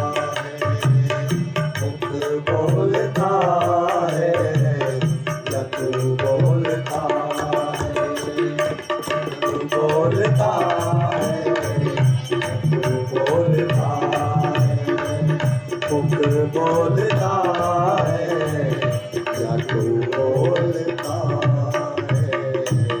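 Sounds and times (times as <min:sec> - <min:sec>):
tabla rhythm: 0:00.0 - 0:23.0
wavering melodic instrument: 0:07.4 - 0:13.2.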